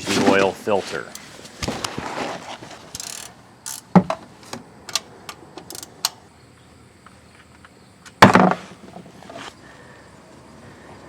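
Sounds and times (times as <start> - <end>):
metal hand tools clicking: 3.0 - 3.9, 5.6 - 6.2.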